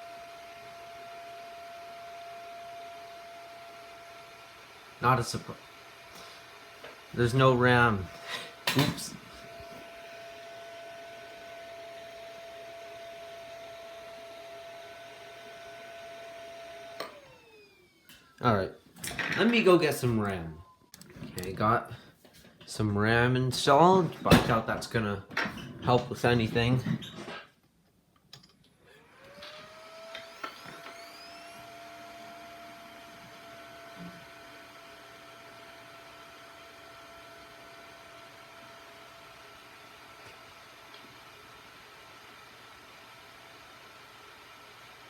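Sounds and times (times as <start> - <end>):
computer fan whine and hum: 29.1 - 45.0.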